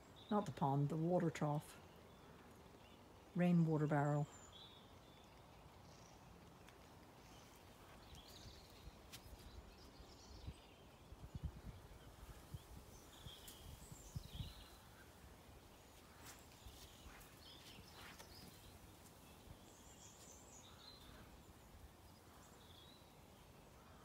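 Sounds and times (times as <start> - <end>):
faint distant bird chirps: 0.0 - 24.0.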